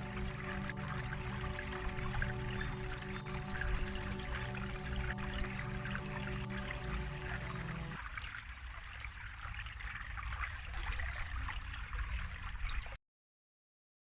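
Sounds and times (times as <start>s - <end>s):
soft held music tones: 0.0s - 8.0s
water trickling: 0.0s - 13.0s.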